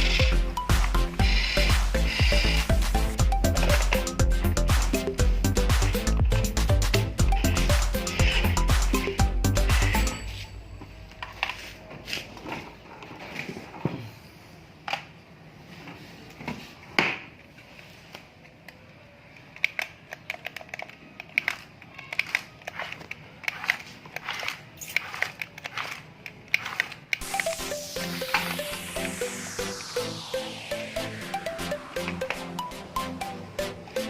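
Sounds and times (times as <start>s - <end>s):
toy trucks crunching and scraping soil: 0.0s - 4.9s, 19.5s - 27.6s.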